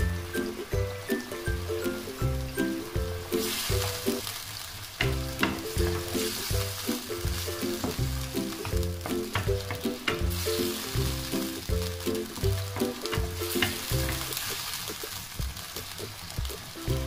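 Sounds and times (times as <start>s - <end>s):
background music: 0.0s - 4.3s, 5.0s - 17.0s
food sizzling in a wok: 0.0s - 17.0s
spatula knocking and scraping pan: 5.0s - 14.6s.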